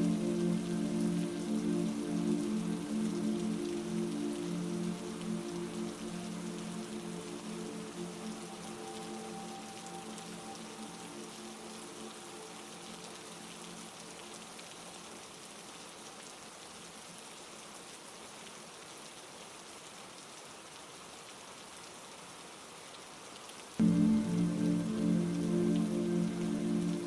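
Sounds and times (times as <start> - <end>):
soft sustained tones: 0.0 - 14.4, 23.8 - 27.0
heavy rain: 0.0 - 27.0.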